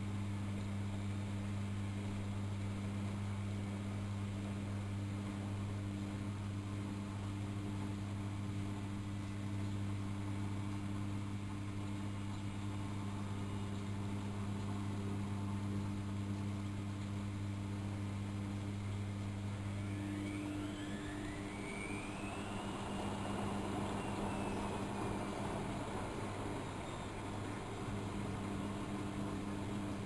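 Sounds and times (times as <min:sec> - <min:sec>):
washing machine hum: 0:00.0 - 0:30.0
motor whine rising in pitch: 0:17.3 - 0:30.0.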